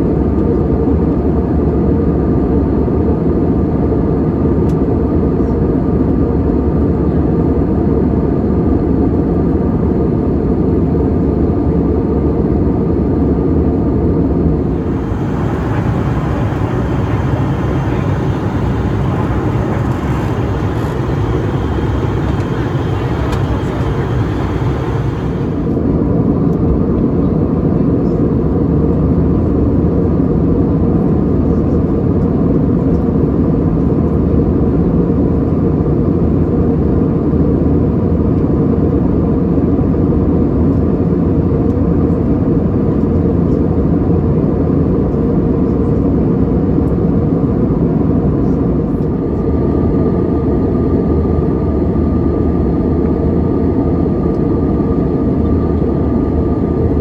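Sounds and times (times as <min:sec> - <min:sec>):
airliner cabin engine rumble: 0:14.5 - 0:26.1
faint steady whine: 0:14.6 - 0:25.8.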